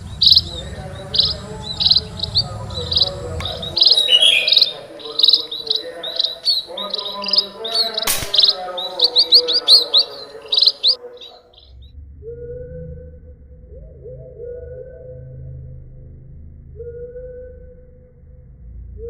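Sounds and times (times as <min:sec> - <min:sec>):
small birds chirping: 0:00.0 - 0:11.8
steady low tone: 0:00.0 - 0:19.0
air rifle shot: 0:08.0 - 0:08.8.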